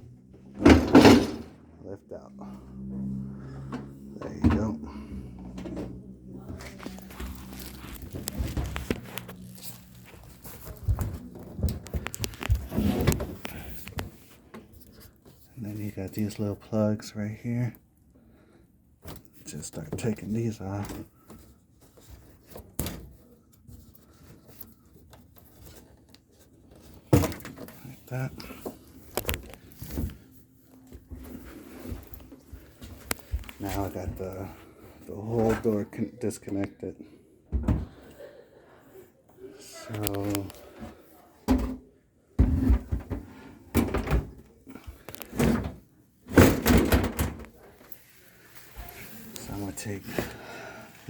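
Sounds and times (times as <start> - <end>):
dishwasher door knocking and rattling: 0.6 - 1.5.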